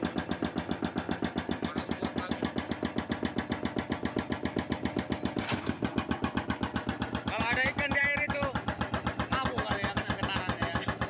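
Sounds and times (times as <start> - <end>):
hydraulic hammer pounding concrete: 0.0 - 11.0.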